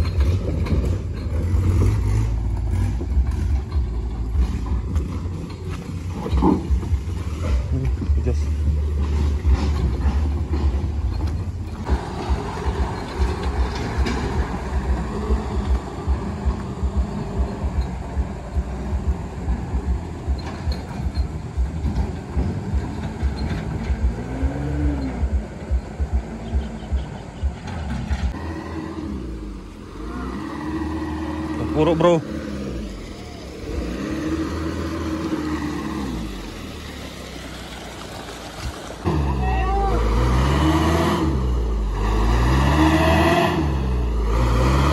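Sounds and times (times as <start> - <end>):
truck engine low rumble: 0.0 - 44.9.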